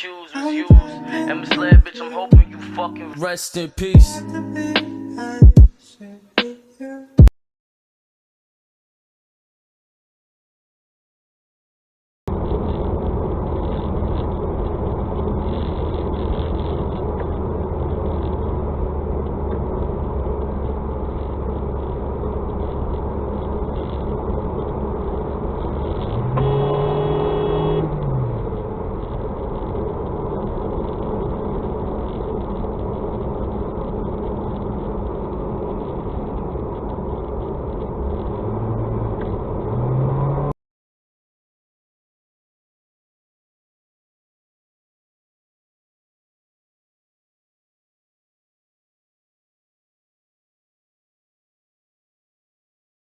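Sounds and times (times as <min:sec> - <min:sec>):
car engine and road noise: 0:12.3 - 0:40.6
car horn: 0:26.2 - 0:28.4.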